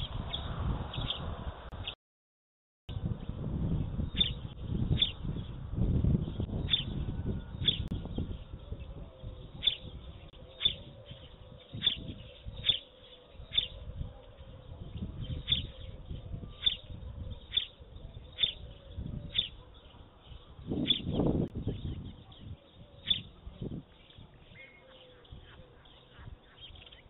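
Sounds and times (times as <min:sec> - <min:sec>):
small bird chirping: 0:04.0 - 0:05.5, 0:06.3 - 0:27.0.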